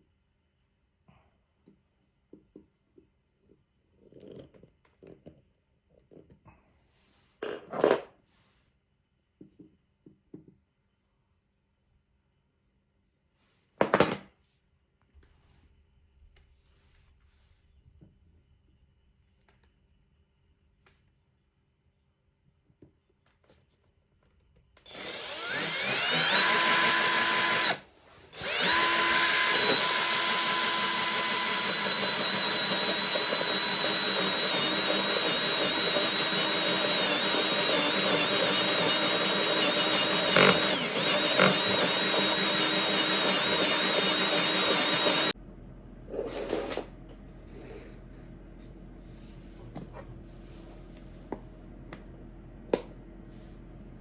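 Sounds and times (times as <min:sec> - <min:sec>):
power tool motor whining: 0:24.9 - 0:45.4.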